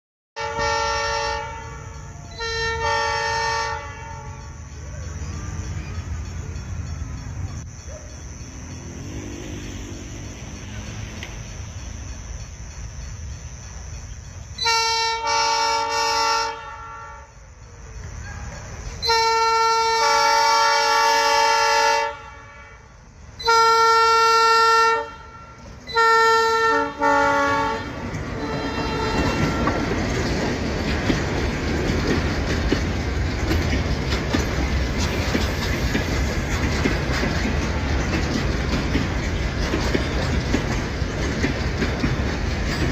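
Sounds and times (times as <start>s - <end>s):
locomotive air horn blasts: 0.4s - 4.5s, 14.6s - 17.4s, 19.0s - 30.0s
train rumbling past: 0.4s - 42.9s
freight wagons clattering on rails: 26.8s - 42.9s.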